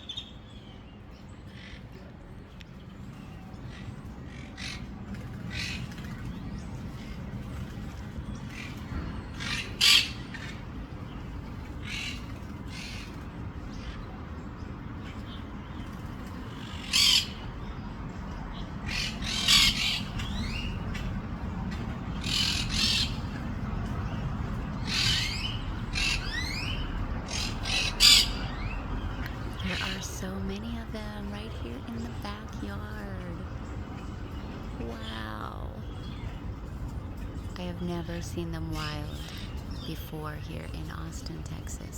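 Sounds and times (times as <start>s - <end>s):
low background rumble: 0.0s - 41.9s
parakeets squawking: 9.4s - 10.7s, 16.5s - 17.7s, 18.8s - 21.2s, 22.1s - 23.9s, 24.7s - 28.8s.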